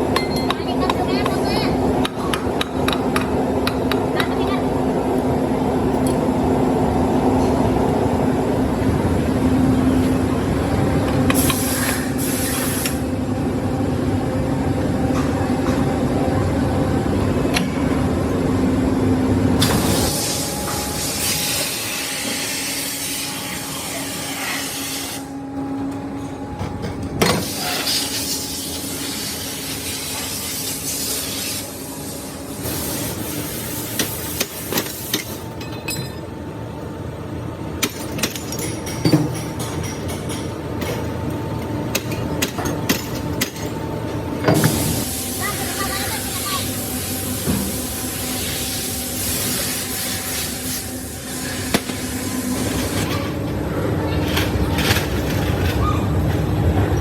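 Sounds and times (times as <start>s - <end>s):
loud mechanical noise: 0.0s - 57.0s
hiss: 11.4s - 13.0s, 19.7s - 23.6s, 27.4s - 35.3s, 44.6s - 53.0s.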